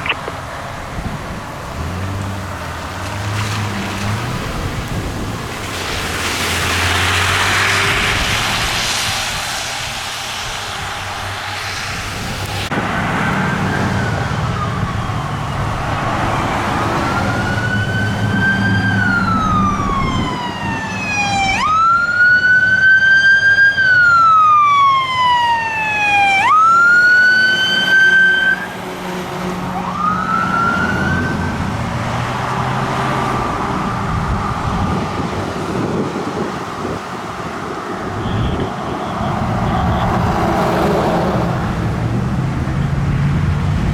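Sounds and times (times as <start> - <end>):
fire truck siren wailing: 1.5 - 43.9
heavy engine rumbling: 28.7 - 43.9.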